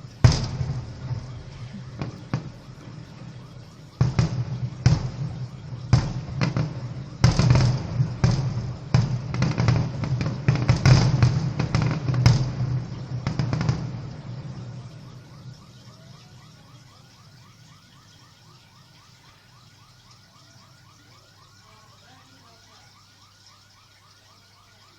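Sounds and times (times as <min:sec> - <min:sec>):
fireworks bangs and crackles: 0:00.0 - 0:17.4
car alarm warbling: 0:00.0 - 0:24.9.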